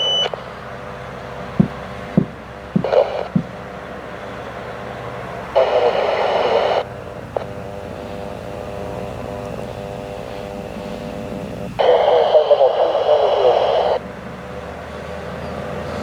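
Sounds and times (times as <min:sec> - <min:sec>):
radio click: 0:00.0 - 0:00.5, 0:01.6 - 0:03.6, 0:05.5 - 0:07.6, 0:09.4 - 0:14.0
steady hum: 0:00.0 - 0:16.0
radio static burst: 0:01.6 - 0:04.4, 0:05.4 - 0:09.0, 0:09.6 - 0:14.0.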